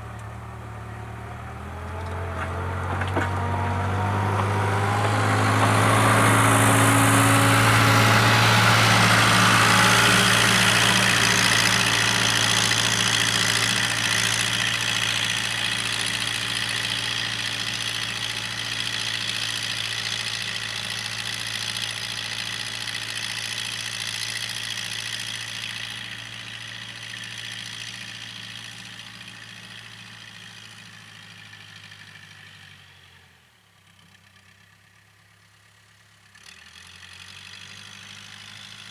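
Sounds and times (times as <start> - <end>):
diesel engine idling: 0.0 - 23.1.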